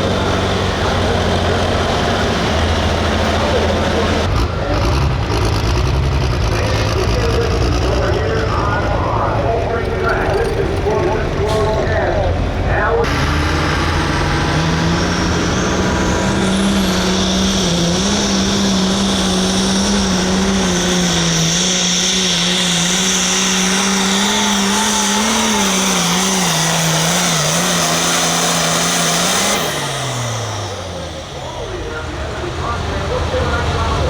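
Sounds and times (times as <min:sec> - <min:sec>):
tractor engine under load: 0:00.0 - 0:34.0
turbo whine: 0:12.8 - 0:34.0.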